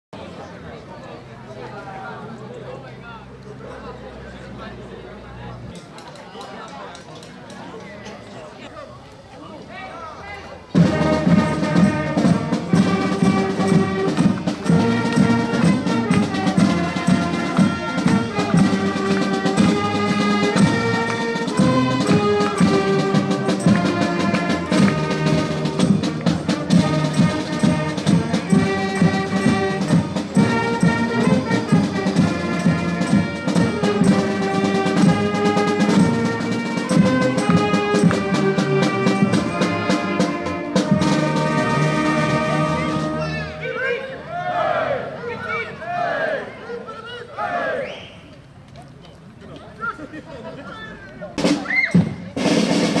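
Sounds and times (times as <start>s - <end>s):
steady drum beat: 10.8s - 43.4s, 51.4s - 53.0s
trumpets and trombones: 10.8s - 45.1s, 51.4s - 53.0s.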